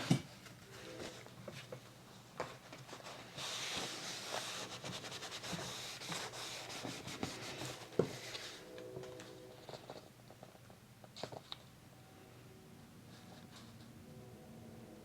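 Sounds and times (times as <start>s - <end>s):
paper rubbed by hand: 2.9s - 8.7s.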